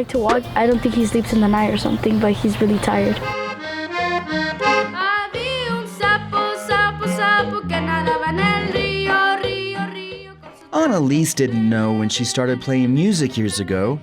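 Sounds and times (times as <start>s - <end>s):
accordion playing a quick melody: 0.0s - 8.7s.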